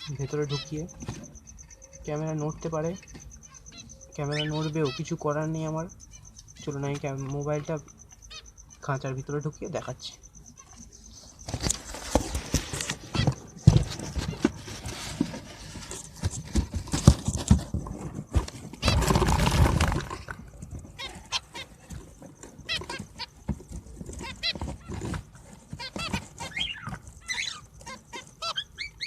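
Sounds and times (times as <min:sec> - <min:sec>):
finches chirping: 0:00.0 - 0:29.0
rustling: 0:10.5 - 0:28.6.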